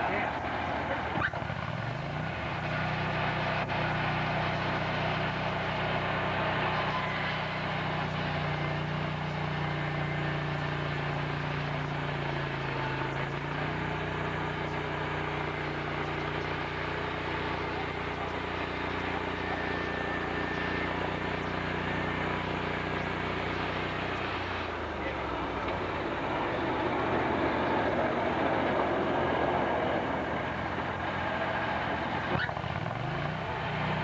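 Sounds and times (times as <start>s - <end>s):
engine running: 0.0s - 34.0s.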